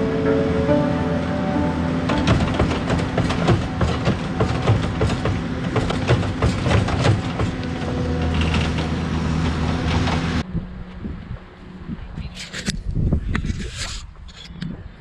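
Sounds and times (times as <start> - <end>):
diesel engine under load: 0.0 - 11.6
tracks and bucket clanking: 2.1 - 10.4.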